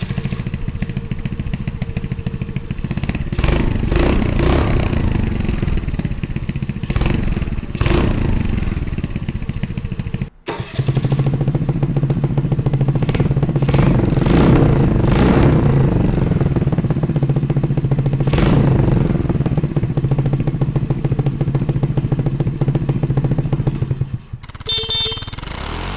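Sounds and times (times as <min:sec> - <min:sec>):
small engine revving: 0:00.0 - 0:25.9.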